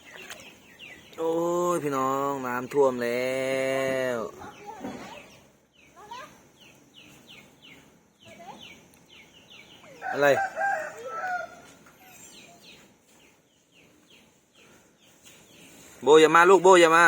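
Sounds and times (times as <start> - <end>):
rooster crowing: 9.9 - 11.8.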